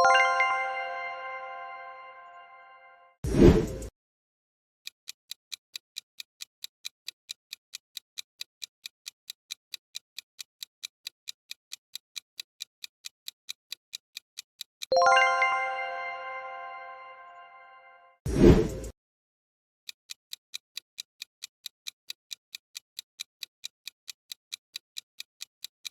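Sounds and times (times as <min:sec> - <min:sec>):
bright bell chime: 0:00.0 - 0:03.0, 0:14.9 - 0:18.1
clock-like timer ticks: 0:03.3 - 0:03.9, 0:04.8 - 0:15.5, 0:19.9 - 0:25.9.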